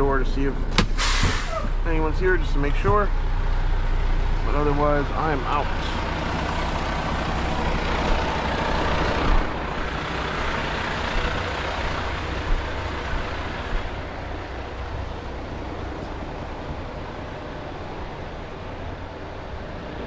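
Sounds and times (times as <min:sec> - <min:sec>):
truck engine humming: 0:00.0 - 0:20.0
hiss: 0:01.0 - 0:01.7.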